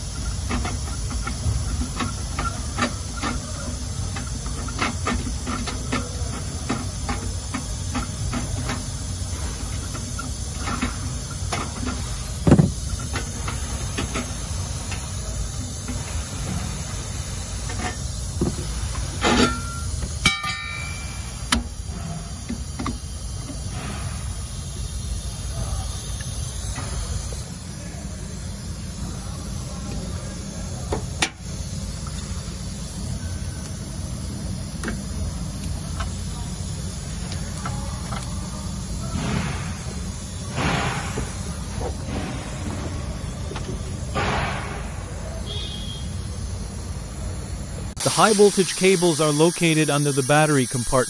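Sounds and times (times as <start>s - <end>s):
steady hiss: 0.0s - 51.0s
tools and parts clicking: 0.1s - 9.0s
metal clatter with ring: 19.2s - 21.4s.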